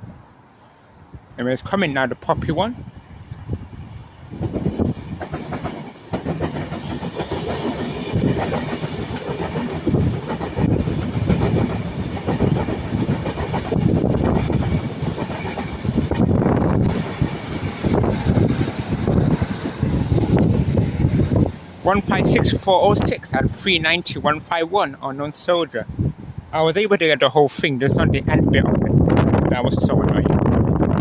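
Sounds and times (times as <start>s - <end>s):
trains passing: 0.1s - 31.0s
train wheels clattering: 4.4s - 23.1s.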